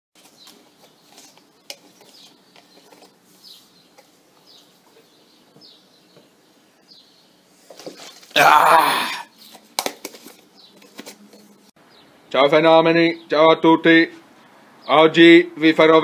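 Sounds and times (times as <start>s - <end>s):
small bird chirping: 0.2s - 8.2s.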